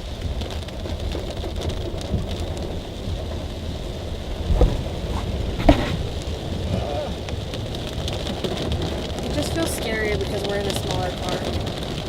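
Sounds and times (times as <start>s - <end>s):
heavy thumps: 4.4s - 6.6s.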